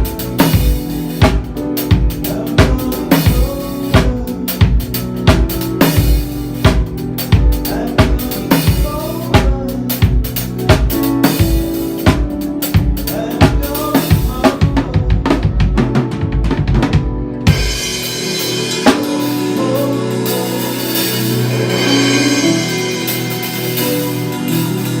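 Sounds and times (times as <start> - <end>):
held notes: 0.0 - 25.0
ringing cymbal wash: 17.6 - 25.0.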